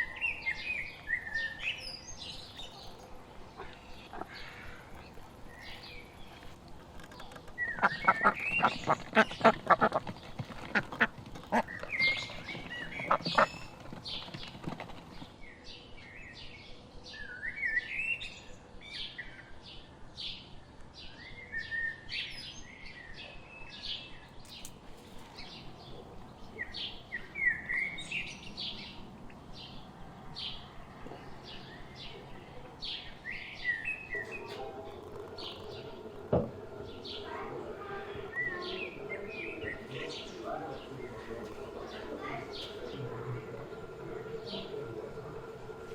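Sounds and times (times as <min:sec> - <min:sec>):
songbirds chirping and twittering: 0:00.0 - 0:45.9
ducks quacking: 0:02.6 - 0:06.6, 0:07.6 - 0:13.8.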